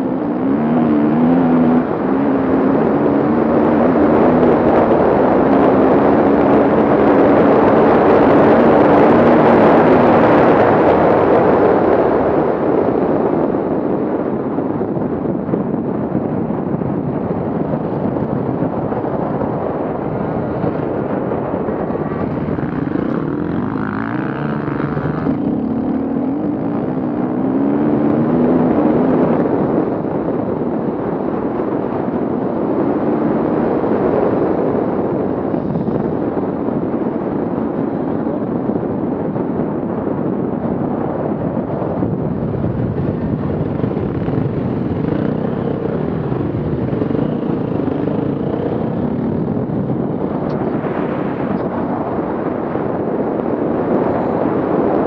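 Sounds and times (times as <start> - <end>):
off-road engines revving: 0.0 - 10.9, 20.4 - 29.4, 42.5 - 49.2.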